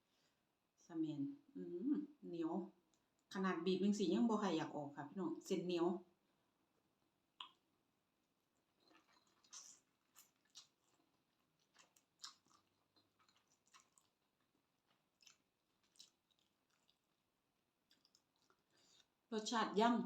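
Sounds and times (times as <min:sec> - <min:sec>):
person chewing food: 0:07.4 - 0:19.3.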